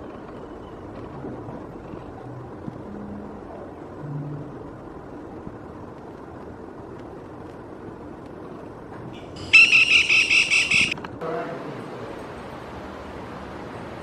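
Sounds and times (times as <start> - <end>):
low steady background noise: 0.0 - 14.0
woodpecker rattling call: 9.2 - 11.0.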